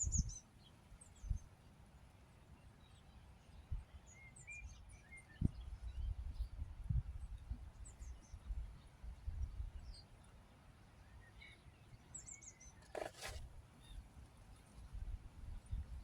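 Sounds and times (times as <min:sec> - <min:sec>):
rustle: 0:09.8 - 0:15.6.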